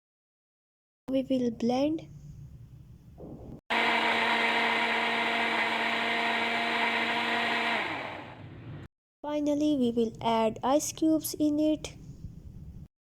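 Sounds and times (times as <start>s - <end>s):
electric blender motor running: 3.7s - 8.9s.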